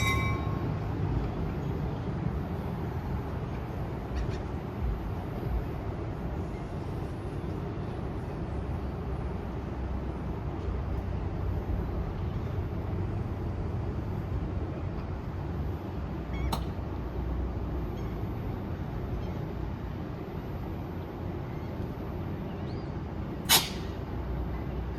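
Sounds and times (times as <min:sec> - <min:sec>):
passenger train rumbling: 0:00.0 - 0:24.9.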